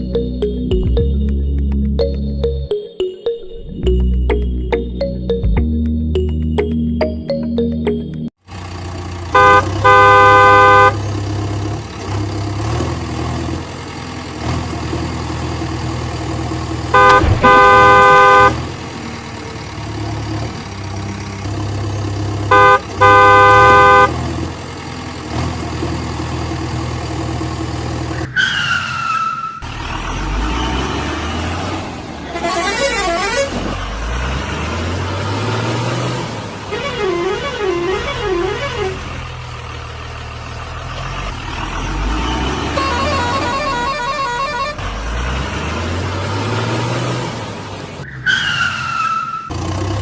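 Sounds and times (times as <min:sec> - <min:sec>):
truck engine running: 0:03.8 - 0:28.3, 0:29.6 - 0:48.1
truck horn honking: 0:09.3 - 0:11.1, 0:16.9 - 0:18.8, 0:22.5 - 0:24.4, 0:32.2 - 0:33.8, 0:36.6 - 0:39.4, 0:42.4 - 0:45.2.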